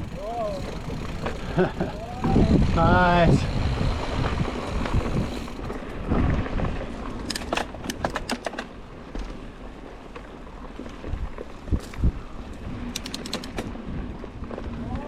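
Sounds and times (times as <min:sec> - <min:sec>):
sharp clicks and rattles: 0:00.0 - 0:06.0, 0:07.2 - 0:08.8, 0:12.8 - 0:13.8
bike tyres rumbling on dirt: 0:00.0 - 0:15.0.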